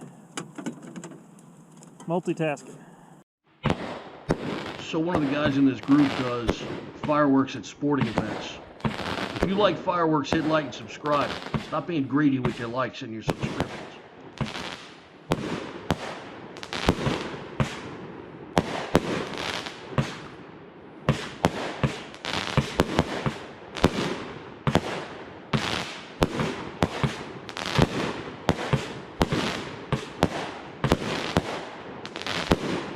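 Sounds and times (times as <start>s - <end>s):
fireworks banging: 3.6s - 32.9s.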